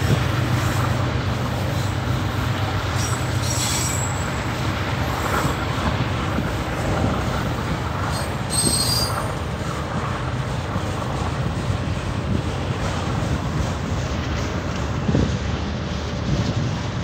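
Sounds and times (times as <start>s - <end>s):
steel wheels rumbling on rails: 0.0s - 17.0s
high-pitched wheel squeals: 3.0s - 4.3s, 8.1s - 9.4s.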